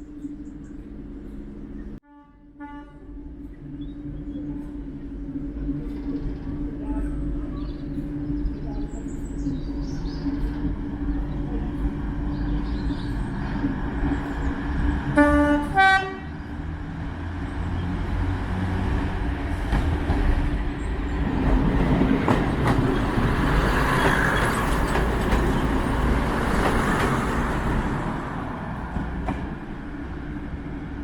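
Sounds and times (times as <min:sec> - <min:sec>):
diesel locomotive engine rumbling: 0:00.0 - 0:31.0
train running noise: 0:00.0 - 0:31.0
train horn blasts: 0:02.0 - 0:03.4, 0:15.1 - 0:16.4.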